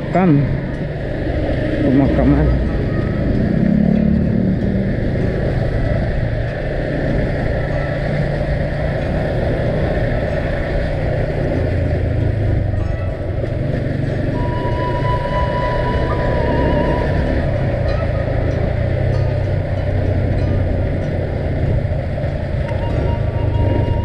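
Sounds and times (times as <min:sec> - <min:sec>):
road noise: 0:00.0 - 0:24.0
vehicle engine running: 0:00.0 - 0:24.0
thin high tone: 0:14.4 - 0:20.8.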